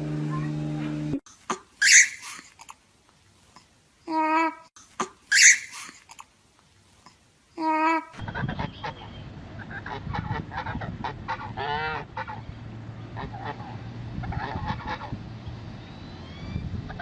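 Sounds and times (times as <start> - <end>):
geese honking: 8.3 - 12.4.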